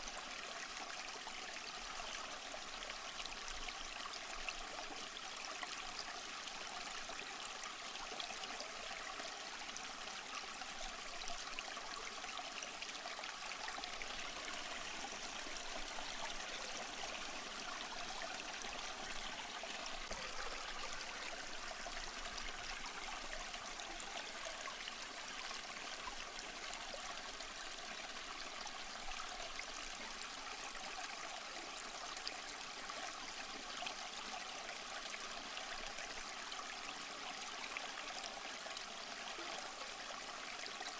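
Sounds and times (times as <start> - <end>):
stream trickling over rocks: 0.0 - 40.9.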